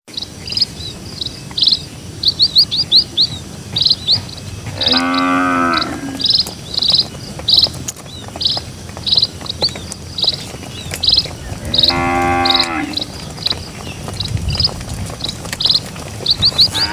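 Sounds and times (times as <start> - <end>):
small birds chirping: 0.1 - 16.9
cow mooing: 4.7 - 6.3, 11.5 - 13.1.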